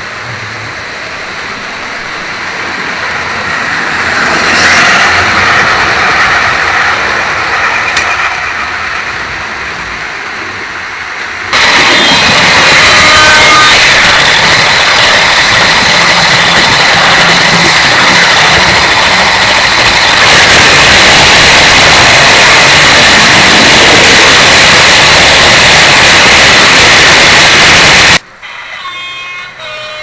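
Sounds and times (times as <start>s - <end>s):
high motor whine: 0.0s - 28.3s
model train wheels rattling: 1.0s - 24.4s.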